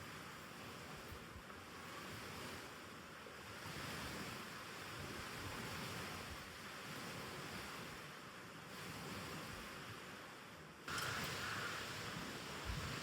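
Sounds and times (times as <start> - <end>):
soft rushing ambient noise: 10.9 - 13.0.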